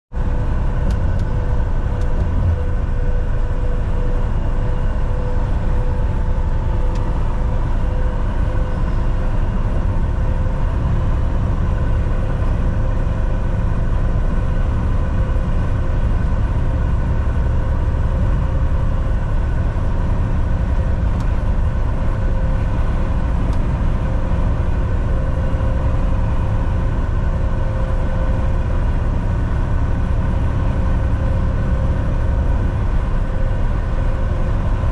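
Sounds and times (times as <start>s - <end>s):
diesel engine drone: 0.1s - 34.9s
road rumble: 0.1s - 34.9s.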